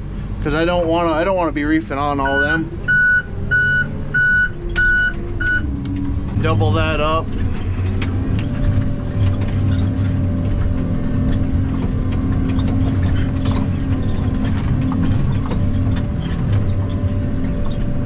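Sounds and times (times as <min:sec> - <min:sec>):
diesel engine under load: 0:00.0 - 0:18.0
metallic clanks and rattles: 0:04.5 - 0:18.0.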